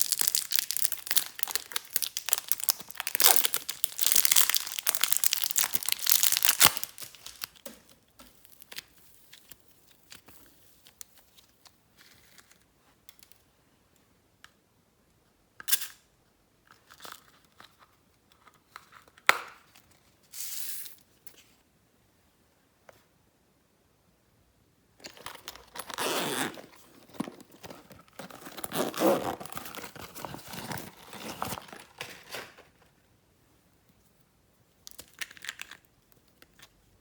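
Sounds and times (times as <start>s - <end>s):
slime crackling and popping: 0.0s - 7.7s.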